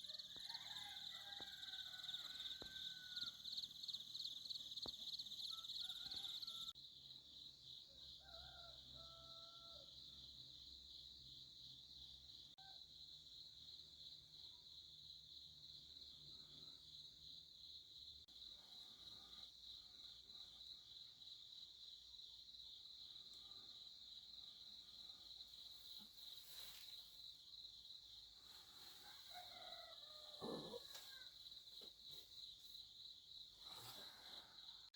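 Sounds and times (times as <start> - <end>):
soft rustle: 25.7 - 27.2.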